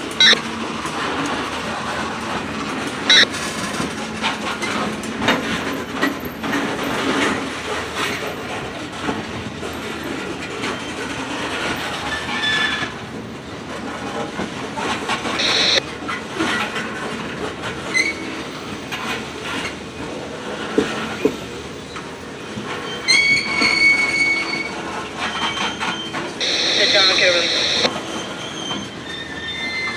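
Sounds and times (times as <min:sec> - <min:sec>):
wheel squeals: 0:28.0 - 0:29.9.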